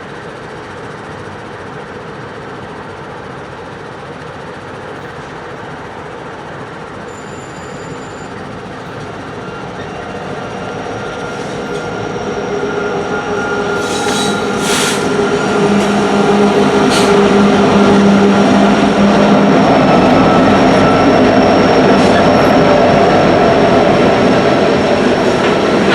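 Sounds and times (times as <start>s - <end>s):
diesel locomotive drone: 0.0s - 25.9s
high whine: 7.0s - 25.9s.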